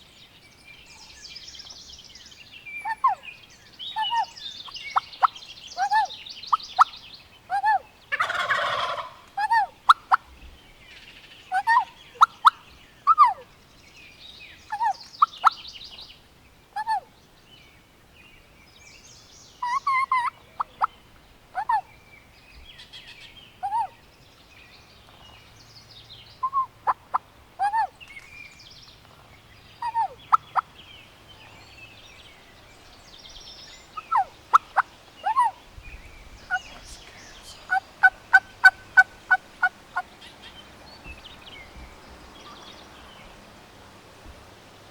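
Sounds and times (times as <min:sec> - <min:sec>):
small birds chirping: 0:00.0 - 0:44.9
wild turkeys calling: 0:02.8 - 0:03.2, 0:03.9 - 0:10.3, 0:11.5 - 0:13.5, 0:19.6 - 0:21.0, 0:21.6 - 0:21.9, 0:23.6 - 0:24.0, 0:26.4 - 0:28.2, 0:29.1 - 0:31.6, 0:33.8 - 0:35.6, 0:36.4 - 0:43.4.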